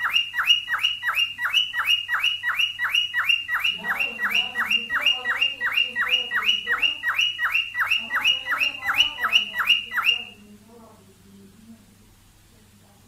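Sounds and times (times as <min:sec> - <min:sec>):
cockatiel whistling call: 0:00.0 - 0:10.4.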